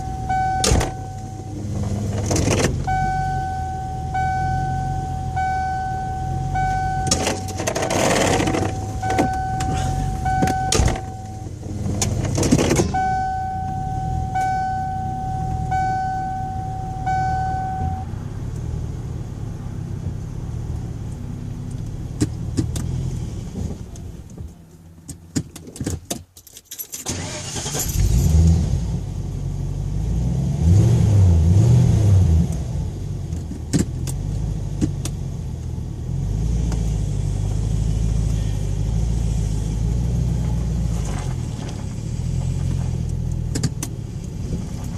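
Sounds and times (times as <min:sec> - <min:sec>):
car warning chime beeping: 0:00.0 - 0:01.8, 0:02.4 - 0:11.7, 0:12.8 - 0:18.2
car engine running and revving: 0:00.0 - 0:25.8, 0:27.1 - 0:44.9
keys jangling: 0:26.3 - 0:27.1.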